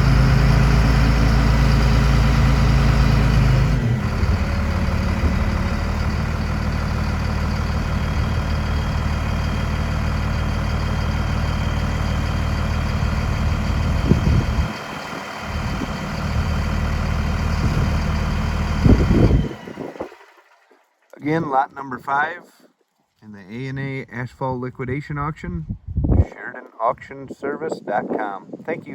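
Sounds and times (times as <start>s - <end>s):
diesel truck engine idling: 0.0s - 20.8s.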